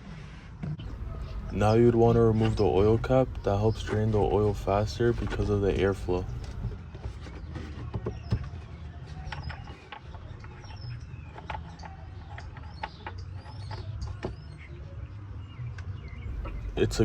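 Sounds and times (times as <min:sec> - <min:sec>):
plastic cap creaking and clicking: 0:03.3 - 0:14.5.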